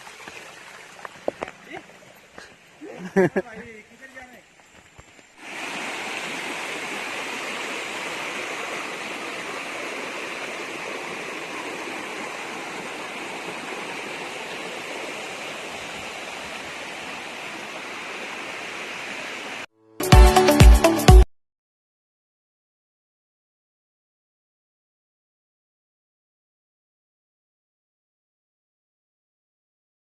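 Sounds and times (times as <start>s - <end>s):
flowing water rushing: 0.0s - 19.7s
loud music: 20.0s - 21.2s.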